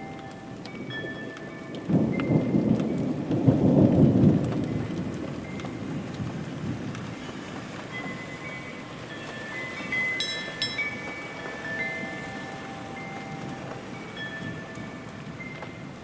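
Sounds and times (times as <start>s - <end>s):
rain hissing: 0.0s - 16.0s
thunder rumbling: 0.0s - 16.0s.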